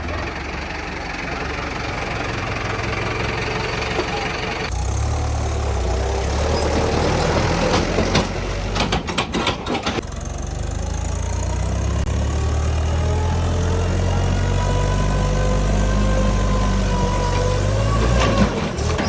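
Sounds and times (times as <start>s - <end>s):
tractor diesel engine running: 0.0s - 19.0s
clattering clicks and knocks: 6.6s - 10.0s.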